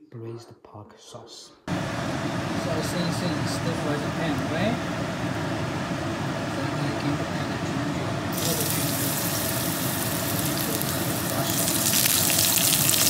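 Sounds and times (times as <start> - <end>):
oil sizzling in a wok: 8.3 - 13.0.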